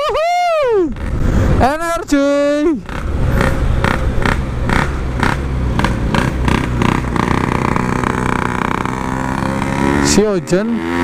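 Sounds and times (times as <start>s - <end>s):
loud two-stroke motorcycle engine: 2.4s - 11.0s.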